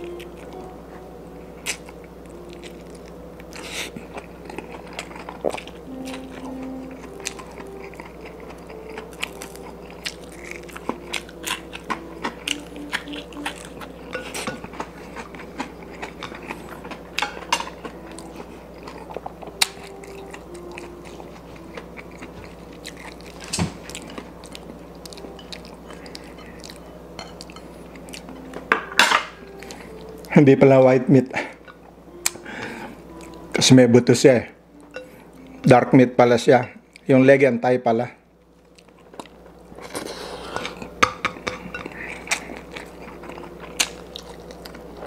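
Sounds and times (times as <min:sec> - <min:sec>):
person chewing and biting chicken: 0:01.6 - 0:28.4, 0:38.7 - 0:45.0.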